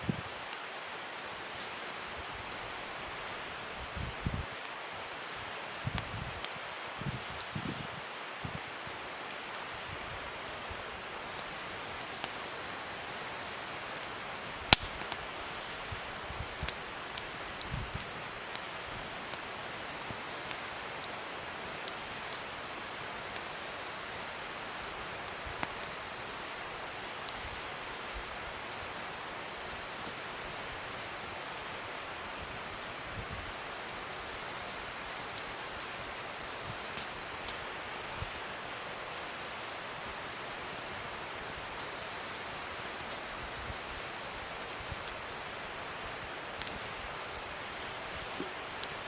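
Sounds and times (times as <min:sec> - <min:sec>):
fire crackling and popping: 0:00.0 - 0:49.0
fire hissing: 0:00.0 - 0:49.0.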